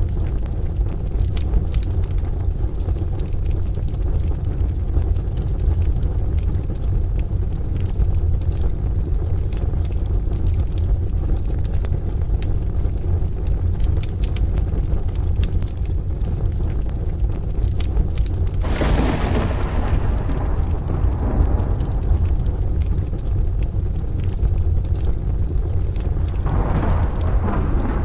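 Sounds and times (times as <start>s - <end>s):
rain: 0.0s - 28.0s
wood fire crackling and popping: 0.0s - 28.0s
distant thunder: 18.6s - 24.0s, 26.1s - 28.0s.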